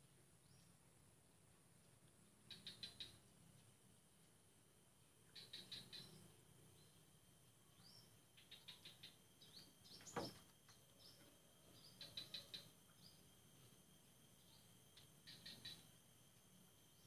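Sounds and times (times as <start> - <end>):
small bird chirping: 0.4 - 0.8, 2.3 - 3.7, 5.2 - 16.2.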